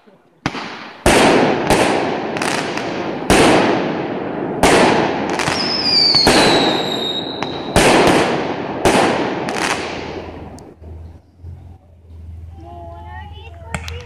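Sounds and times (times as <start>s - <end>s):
fireworks bangs: 0.4s - 10.8s
whistling firework shell: 5.5s - 7.8s.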